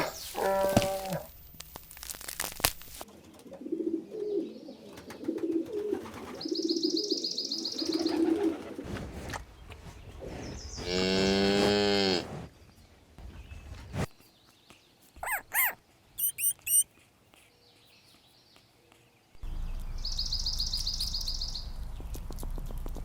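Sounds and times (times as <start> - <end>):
high chirping trill: 15.2 - 16.9
low soft animal calls: 15.2 - 16.9.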